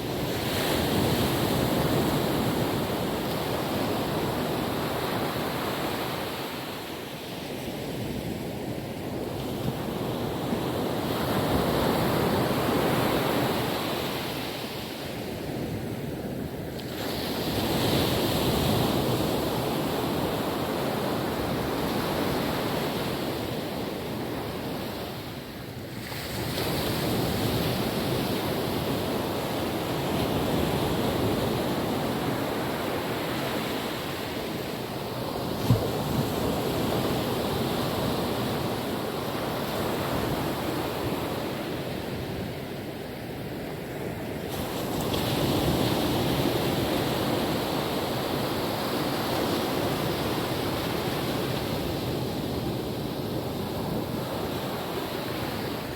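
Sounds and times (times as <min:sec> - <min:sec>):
ocean waves washing onto beach: 0:00.0 - 0:55.9.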